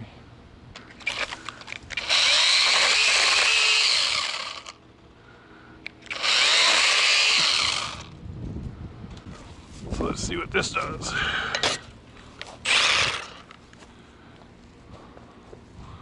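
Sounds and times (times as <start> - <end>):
chainsaw cutting wood: 1.0 - 4.8, 6.1 - 8.1, 12.6 - 13.5.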